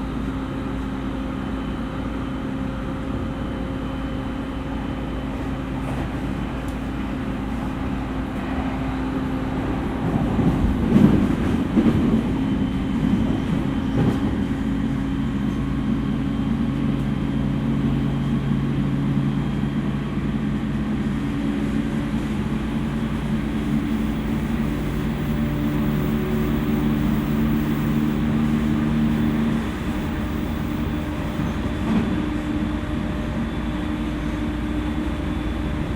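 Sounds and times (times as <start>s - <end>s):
train wheels rumbling on rails: 2.9s - 35.9s
low motor hum: 19.5s - 33.3s.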